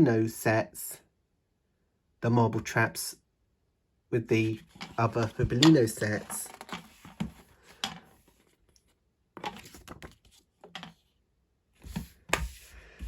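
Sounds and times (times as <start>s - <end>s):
handling clicks and rustles: 4.6s - 11.0s.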